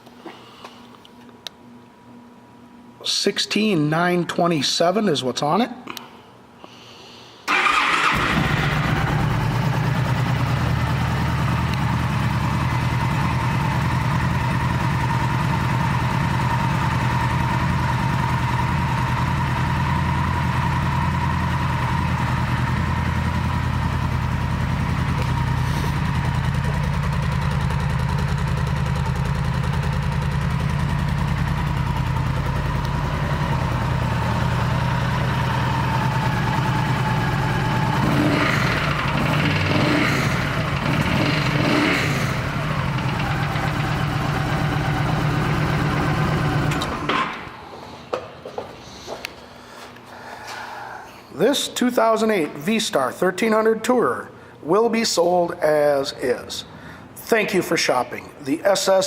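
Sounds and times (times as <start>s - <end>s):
motorcycle engine starting and idling: 7.5s - 47.8s.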